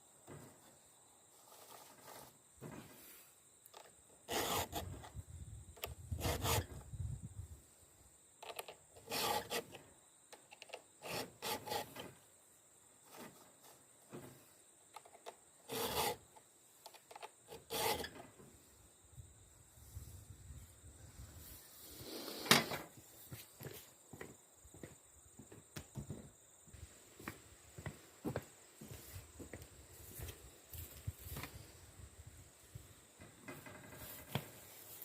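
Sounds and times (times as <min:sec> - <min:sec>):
file scraping chainsaw teeth: 0:04.3 - 0:05.0, 0:06.1 - 0:06.8, 0:08.5 - 0:09.8, 0:11.0 - 0:12.0, 0:15.6 - 0:16.2, 0:17.2 - 0:18.1.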